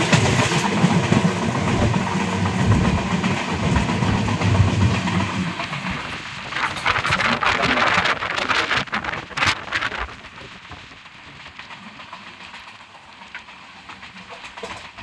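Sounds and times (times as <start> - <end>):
train rushing hiss: 0.0 - 8.4
steady train running noise: 0.0 - 15.0.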